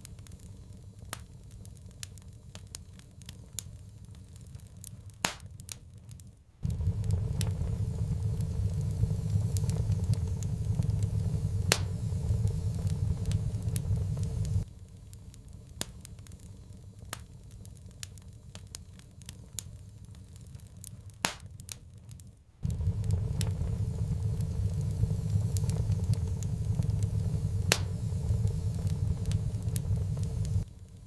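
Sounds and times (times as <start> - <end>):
wood fire crackling: 0.0 - 31.0
low steady rumble: 6.4 - 21.3, 22.4 - 31.0.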